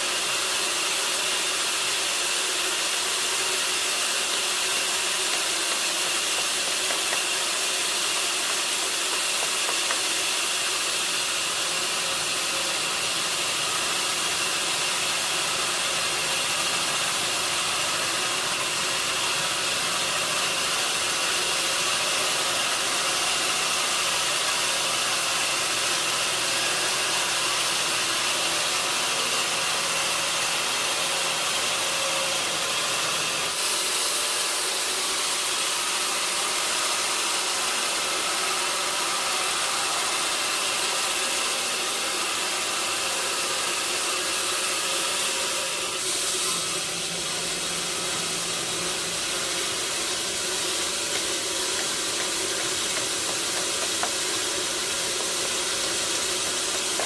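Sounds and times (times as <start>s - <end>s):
sawmill machinery hissing: 0.0s - 57.0s.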